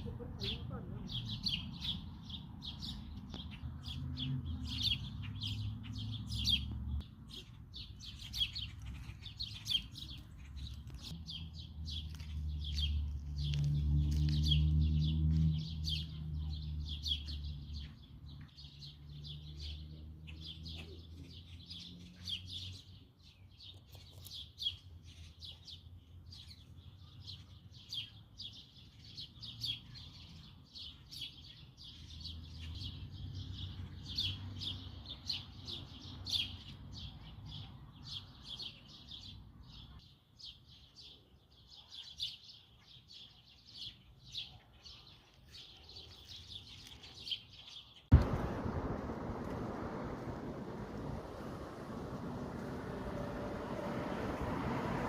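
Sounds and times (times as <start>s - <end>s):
songbirds chirping: 0.0s - 55.0s
low sustained drone: 48.2s - 54.2s.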